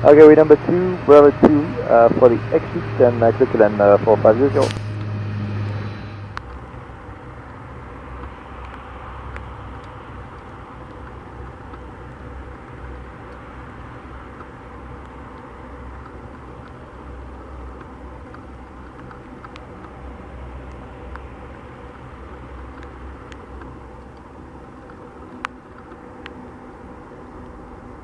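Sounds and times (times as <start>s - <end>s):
steady low rumble: 0.0s - 28.0s
faint clicks: 8.2s - 13.5s, 17.7s - 20.0s, 21.9s - 26.4s.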